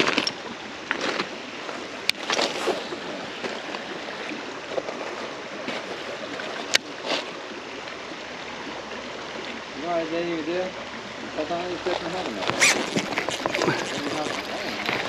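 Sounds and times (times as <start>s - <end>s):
flowing creek water: 0.0s - 15.0s
splashy rustles: 0.9s - 7.4s, 11.8s - 15.0s.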